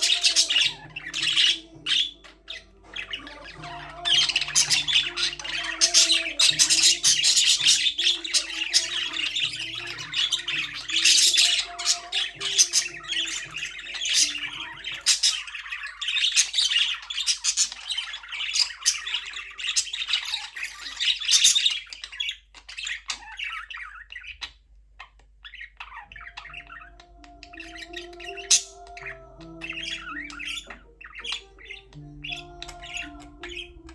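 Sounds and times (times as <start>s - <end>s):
budgerigars chirping: 0.0s - 33.9s.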